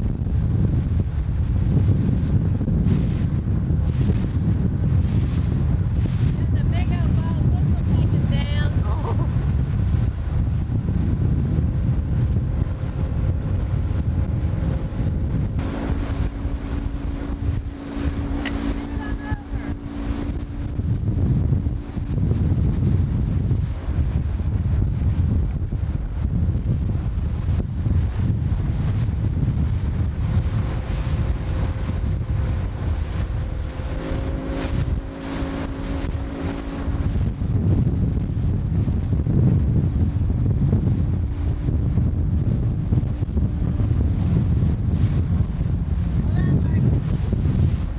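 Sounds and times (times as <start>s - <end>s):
boat engine drone: 0.0s - 47.9s
wind buffeting microphone: 0.0s - 47.9s
steady hum: 1.4s - 47.9s
short tick: 18.4s - 18.6s.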